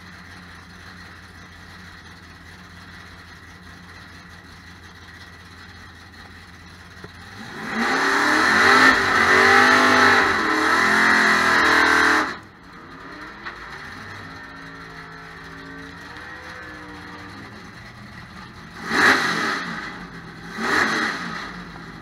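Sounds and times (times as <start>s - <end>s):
race car engine idling and revving: 0.0s - 22.0s.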